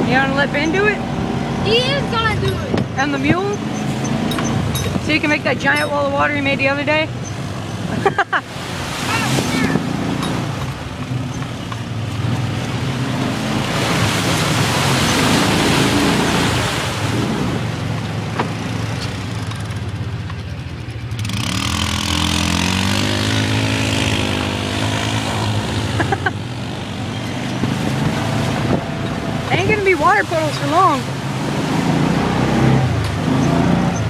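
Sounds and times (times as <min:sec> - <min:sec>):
off-road vehicle engine revving: 0:00.0 - 0:34.0
spraying water rushing: 0:06.3 - 0:20.1, 0:21.2 - 0:34.0.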